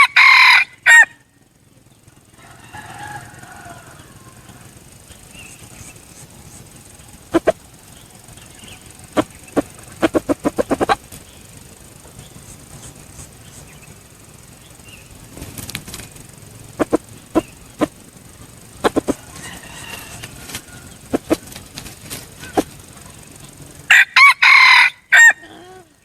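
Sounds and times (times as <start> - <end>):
rooster flapping wings: 9.1 - 11.3, 15.3 - 18.0, 18.8 - 23.3.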